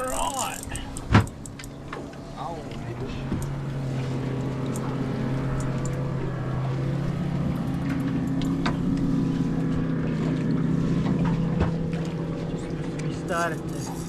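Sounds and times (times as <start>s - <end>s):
outboard motor humming: 0.0s - 14.0s
light clicks: 4.7s - 6.0s.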